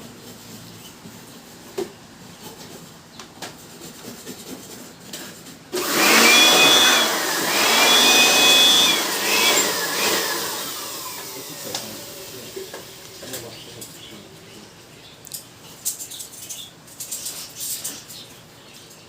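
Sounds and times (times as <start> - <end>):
small electric motor whining: 5.8 - 12.6.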